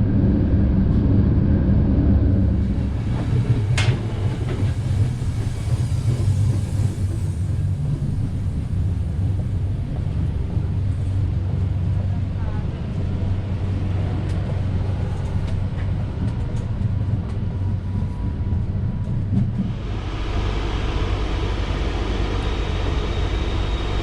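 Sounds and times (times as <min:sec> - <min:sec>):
train wheels rumbling on track: 0:00.0 - 0:24.0.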